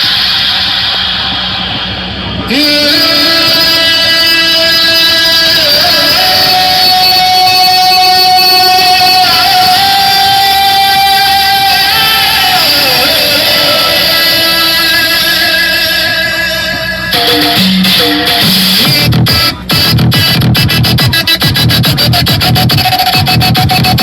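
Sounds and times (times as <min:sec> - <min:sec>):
loud music over speakers: 0:00.0 - 0:24.0.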